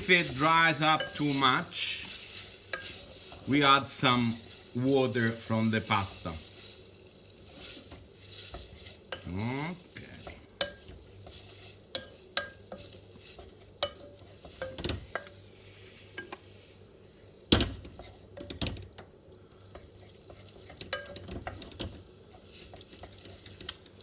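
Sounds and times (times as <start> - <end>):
utensil knocking pan: 0.0 - 6.7, 7.4 - 15.4
utensil scraping pan: 0.0 - 16.8
faint sizzle: 0.0 - 24.0.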